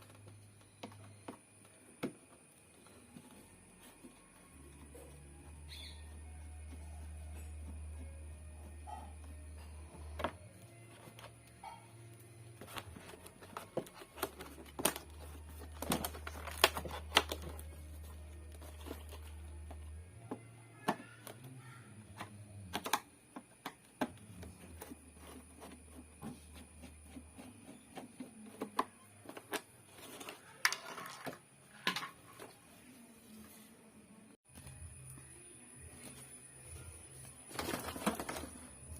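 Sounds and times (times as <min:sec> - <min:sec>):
hard objects clicking and knocking: 0:12.5 - 0:32.5.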